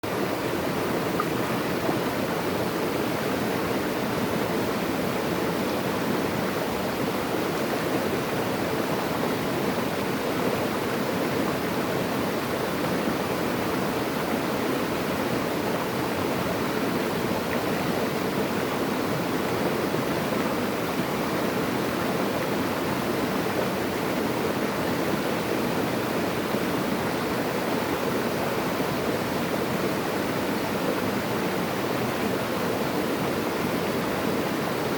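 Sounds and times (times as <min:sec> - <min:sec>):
running water rushing: 0:00.1 - 0:34.9.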